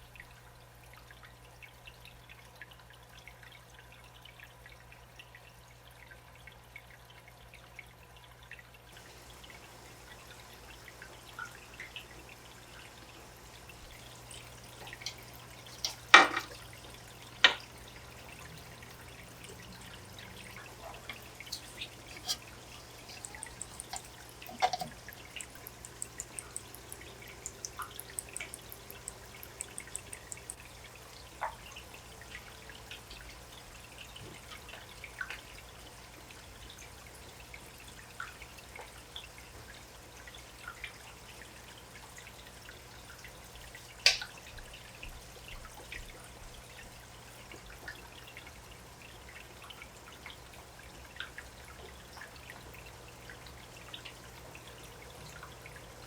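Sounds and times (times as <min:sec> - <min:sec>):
water dripping into aquarium: 0:00.0 - 0:56.0
steady low hum: 0:09.0 - 0:35.2.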